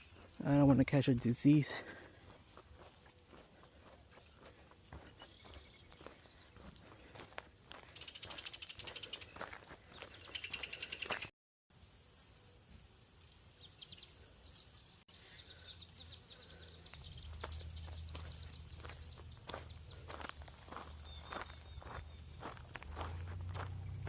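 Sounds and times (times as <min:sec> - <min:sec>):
footsteps on trail: 0:00.0 - 0:11.3, 0:16.4 - 0:24.0
songbird chirping: 0:00.0 - 0:11.3, 0:13.2 - 0:24.0.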